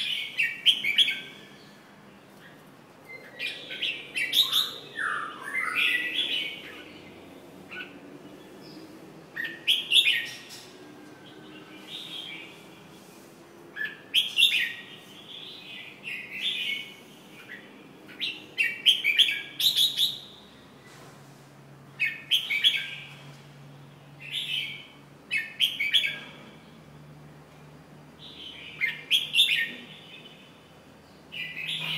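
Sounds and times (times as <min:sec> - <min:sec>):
bird singing chirpy notes: 0:03.1 - 0:12.7.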